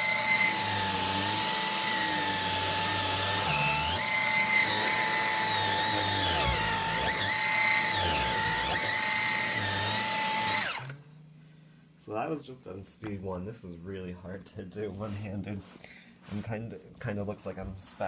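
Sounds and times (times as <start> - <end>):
vacuum cleaner motor whine: 0.0 - 11.0.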